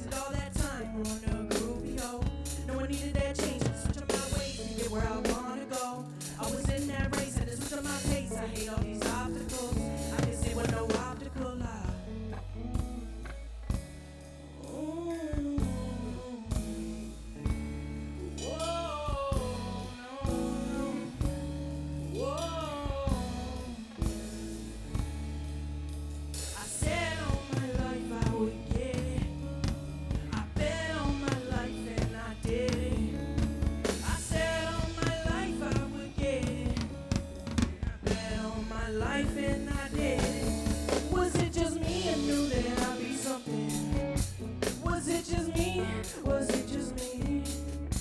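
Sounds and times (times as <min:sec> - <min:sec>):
live band playing: 0:00.0 - 0:14.3, 0:25.9 - 0:48.0
sung vocals sliding in pitch: 0:38.5 - 0:43.9.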